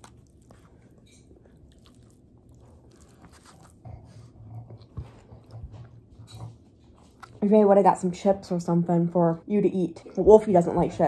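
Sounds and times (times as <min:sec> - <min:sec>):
person chewing food: 0:00.0 - 0:07.4.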